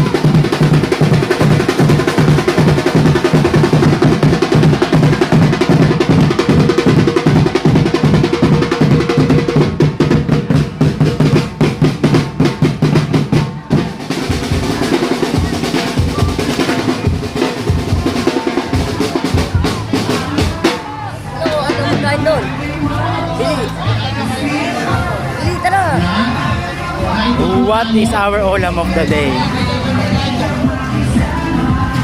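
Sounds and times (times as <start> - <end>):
snare drum rolls: 0.0 - 22.3
bass drum beats: 0.0 - 32.0.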